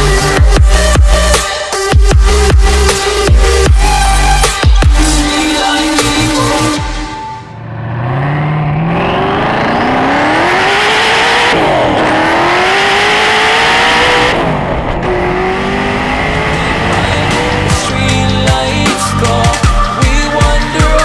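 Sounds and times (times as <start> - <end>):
car engine accelerating hard: 7.6 - 18.4.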